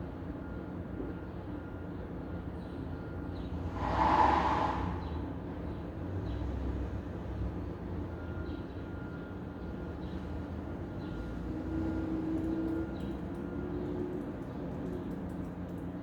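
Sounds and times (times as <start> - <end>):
low rumble of traffic: 3.4 - 16.0
brief rushing noise: 3.7 - 5.4.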